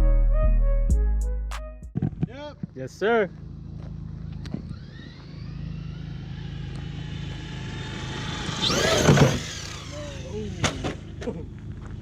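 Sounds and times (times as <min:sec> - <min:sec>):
electric motor whining: 0:03.4 - 0:12.0.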